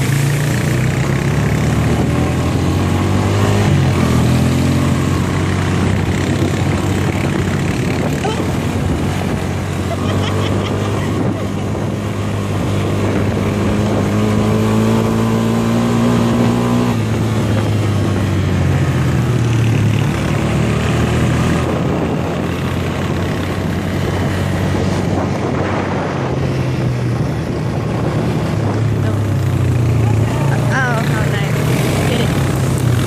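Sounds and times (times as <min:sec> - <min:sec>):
atv engine running: 0:00.0 - 0:33.0.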